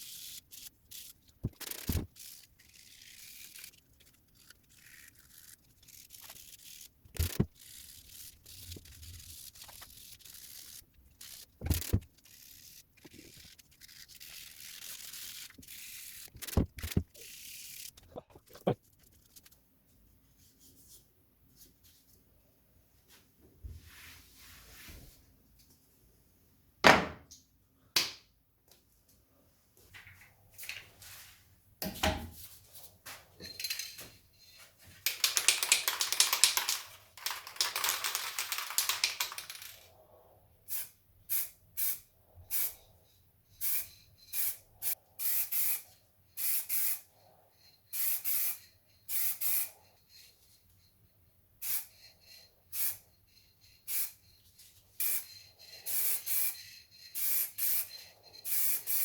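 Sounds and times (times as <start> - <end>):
spray paint hissing: 0.0 - 18.1, 35.0 - 39.8, 40.7 - 42.8, 43.6 - 47.1, 47.9 - 50.3, 51.6 - 59.0
thump: 26.8 - 27.2.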